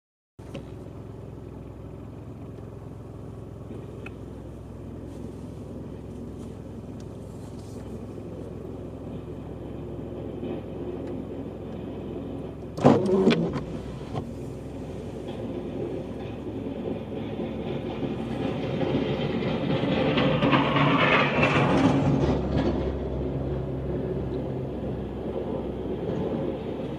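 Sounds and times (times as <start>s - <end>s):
vehicle engine running: 0.4s - 26.9s
loud clatter: 15.1s - 23.3s.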